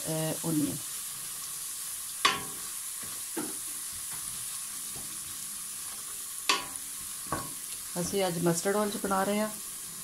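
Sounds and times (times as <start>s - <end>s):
spices sizzling in hot oil: 0.0s - 10.0s
wooden spoon knocking on pot: 2.2s - 3.6s, 6.5s - 8.2s.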